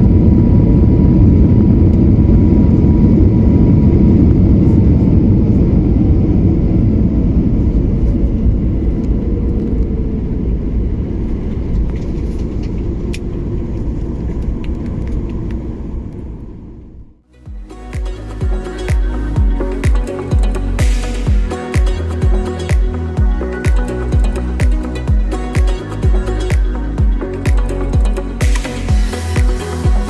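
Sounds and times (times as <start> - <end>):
airliner engine and rolling rumble: 0.0 - 17.2.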